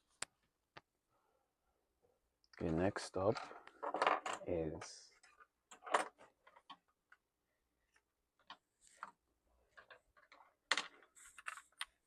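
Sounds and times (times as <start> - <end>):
small parts clicking and tapping: 7.9 - 12.0.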